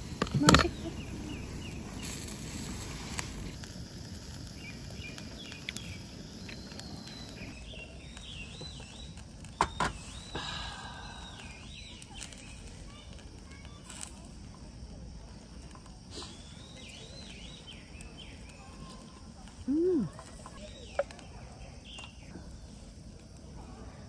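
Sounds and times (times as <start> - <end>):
birds warbling: 0.0 - 3.6
low background rumble: 0.0 - 7.6.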